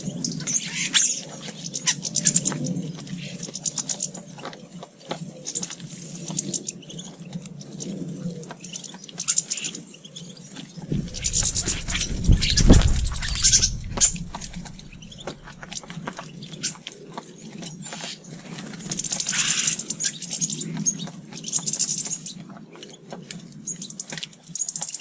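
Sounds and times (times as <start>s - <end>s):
high bird chirping: 10.9s - 15.8s.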